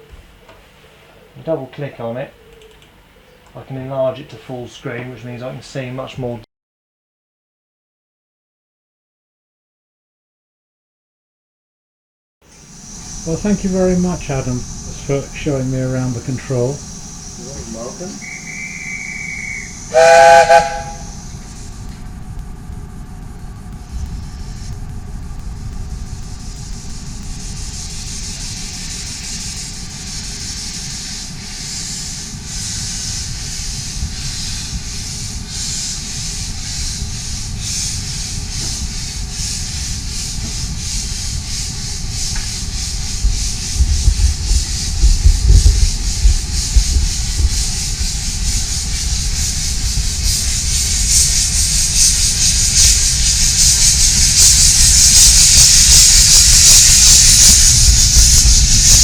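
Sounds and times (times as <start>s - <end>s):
steam hiss: 12.4s - 59.0s
steam locomotive exhaust beats: 12.4s - 59.0s
loud low thumping: 37.0s - 59.0s.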